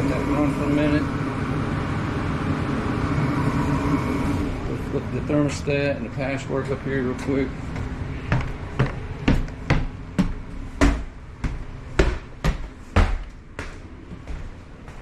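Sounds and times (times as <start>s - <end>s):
heavy footsteps climbing stairs: 6.1s - 15.0s.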